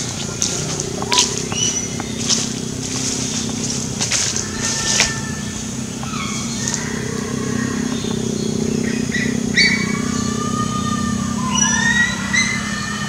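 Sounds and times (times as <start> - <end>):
steady low hum: 0.0 - 12.8
whistled bird calls: 0.4 - 2.4, 3.0 - 13.0.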